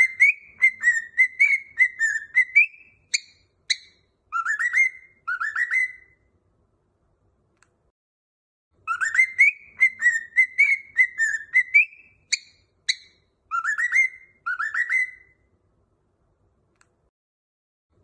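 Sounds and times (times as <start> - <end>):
cockatiel whistling: 0.0 - 6.2, 8.8 - 15.4
bird chirps: 0.0 - 6.3, 8.8 - 15.5.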